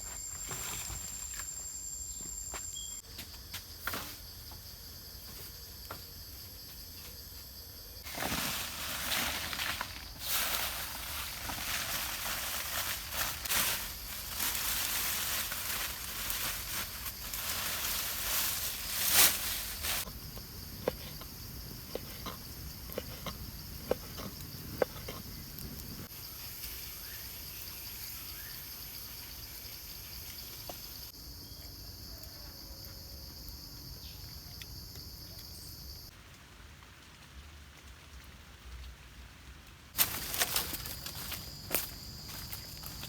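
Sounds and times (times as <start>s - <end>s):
insects calling: 0.0s - 36.2s, 40.0s - 43.0s
rustling and crackling: 8.0s - 20.2s, 40.0s - 43.0s.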